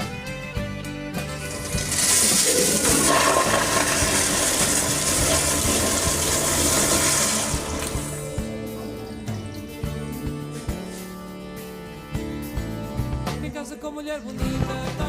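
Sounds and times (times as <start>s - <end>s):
toilet flushing: 1.2s - 10.0s.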